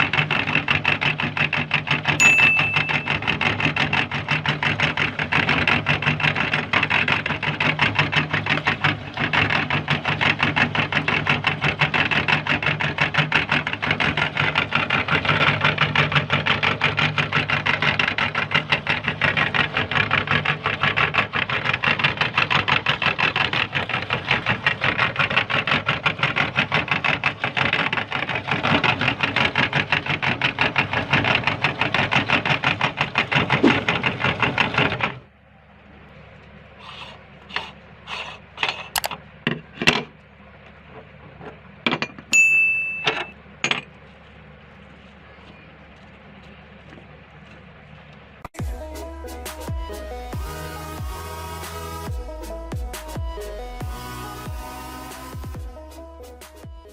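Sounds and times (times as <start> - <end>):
meat grinder running: 0.0 - 35.3
low hum: 2.2 - 25.0, 39.0 - 56.9.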